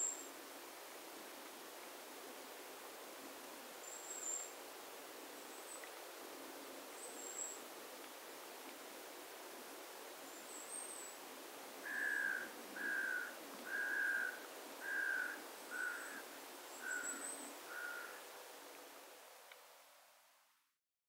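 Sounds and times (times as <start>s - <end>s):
soft background hiss: 0.0s - 20.8s
small birds high calls: 11.8s - 18.2s.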